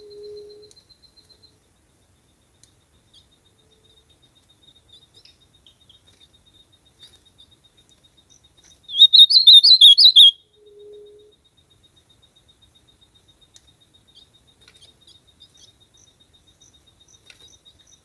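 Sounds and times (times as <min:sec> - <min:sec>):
bird warbling: 0:08.9 - 0:10.4.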